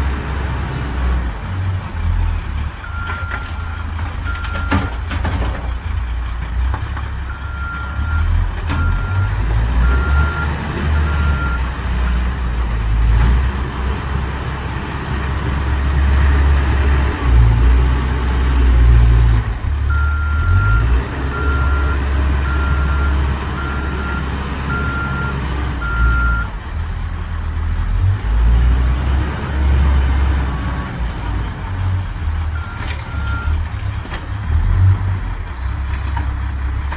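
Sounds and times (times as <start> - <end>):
diesel engine working: 0.0 - 36.9
reversing alarm beeping: 7.3 - 11.6, 19.9 - 26.5.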